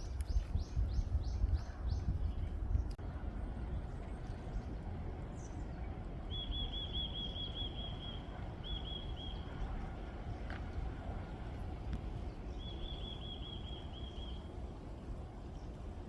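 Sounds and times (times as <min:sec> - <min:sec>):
wind buffeting microphone: 0:00.0 - 0:06.3.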